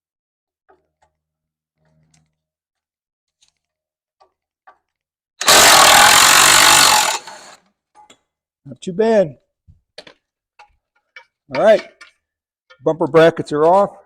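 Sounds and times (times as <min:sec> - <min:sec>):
impact wrench running: 0:05.4 - 0:07.6.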